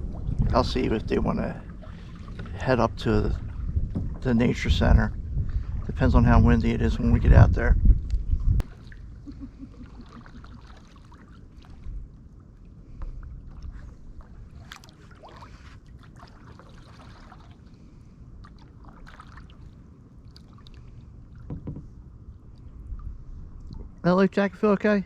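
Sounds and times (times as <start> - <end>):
wind on microphone: 0.0 - 10.2, 21.3 - 24.1
paddle splashes and drips: 1.6 - 4.3, 8.6 - 24.0.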